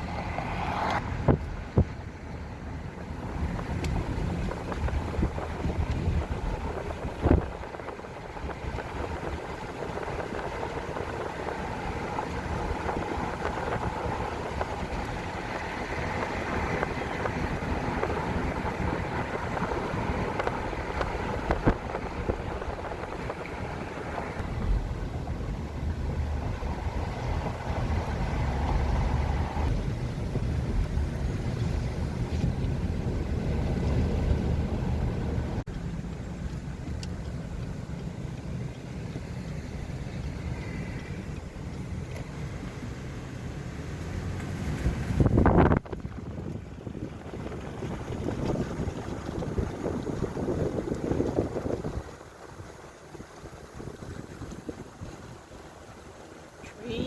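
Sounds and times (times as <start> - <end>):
road and wind noise: 0.0 - 57.0
vehicle rumbling: 0.0 - 57.0.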